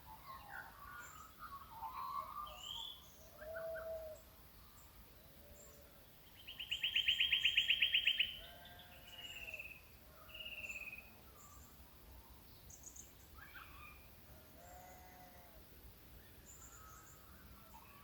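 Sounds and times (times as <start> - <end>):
faint low bird calls: 0.0 - 15.6
faint high bird chirps: 6.4 - 9.7.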